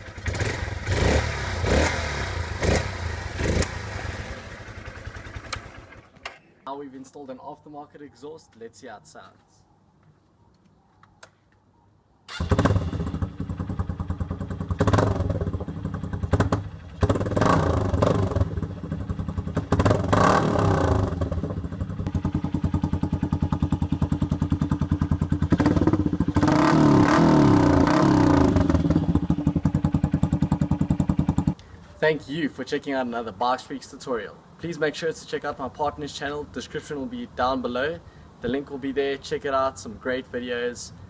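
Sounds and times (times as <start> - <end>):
motorcycle engine idling and revving: 0.0 - 6.4, 12.3 - 31.6.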